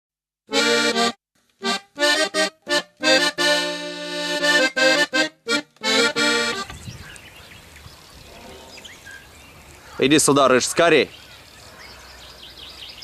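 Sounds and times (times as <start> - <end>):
accordion chords: 0.5 - 6.8.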